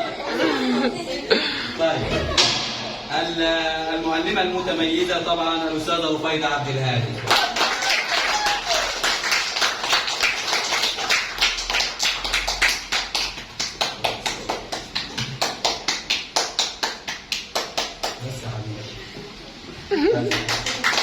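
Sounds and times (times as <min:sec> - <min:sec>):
people clapping: 0:07.2 - 0:18.4, 0:20.2 - 0:21.0.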